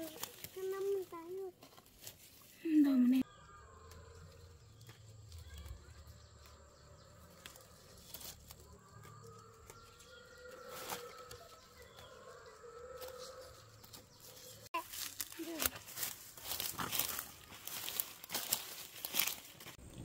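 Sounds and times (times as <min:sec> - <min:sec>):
birds calling: 0:03.0 - 0:15.1.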